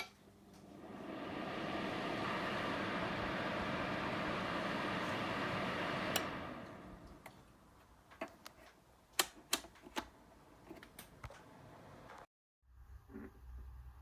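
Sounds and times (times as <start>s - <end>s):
fan heater blowing: 0.3s - 7.7s.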